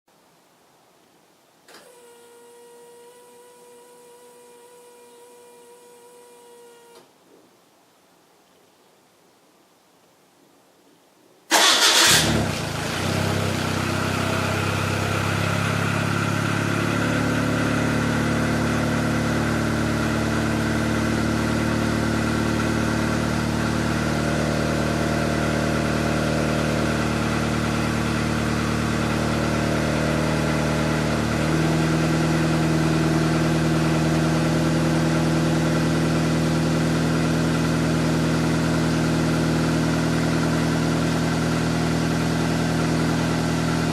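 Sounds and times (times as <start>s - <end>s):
car engine starting and idling: 11.5s - 43.9s.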